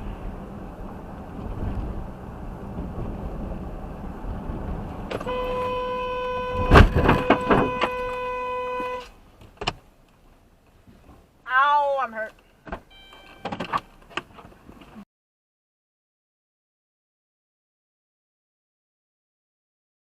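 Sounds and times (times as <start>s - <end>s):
car road rumble: 0.0s - 15.0s
car horn held: 5.1s - 9.2s, 12.8s - 13.6s.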